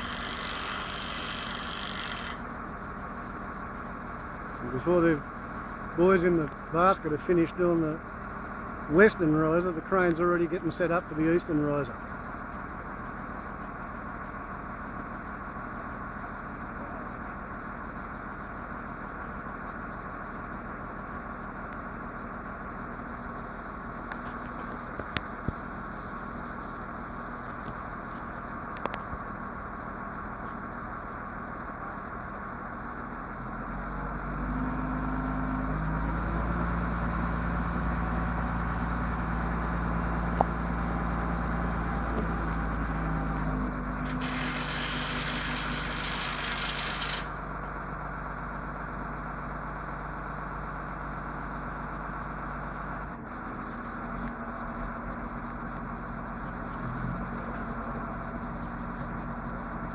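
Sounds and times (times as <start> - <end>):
heavy truck engine running: 0.0 - 59.9
loud hiss: 44.1 - 47.3.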